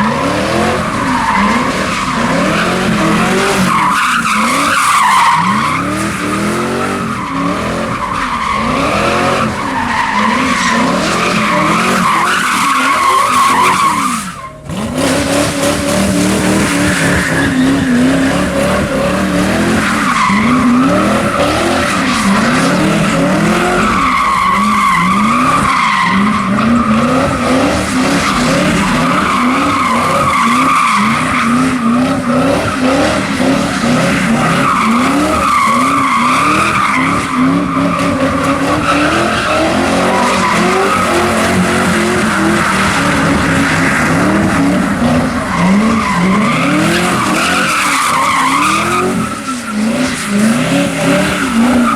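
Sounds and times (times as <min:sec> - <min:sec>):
car engine revving: 0:00.0 - 0:51.9
tyres squealing: 0:00.8 - 0:51.9.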